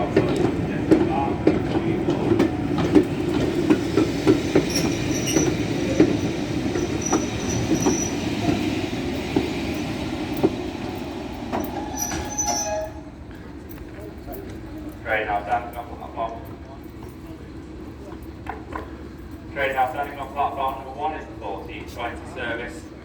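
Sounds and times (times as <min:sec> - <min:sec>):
wheels clicking over rail joints: 0:00.0 - 0:13.0
train rumbling: 0:00.0 - 0:23.0
brakes squealing: 0:04.4 - 0:09.9.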